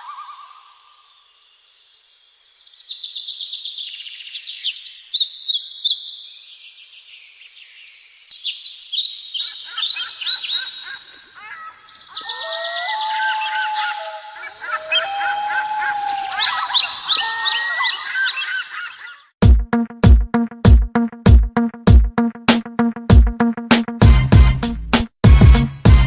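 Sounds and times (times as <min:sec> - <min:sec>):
birds chirping and trilling: 0:00.0 - 0:19.4
low whistling bird notes: 0:12.1 - 0:18.6.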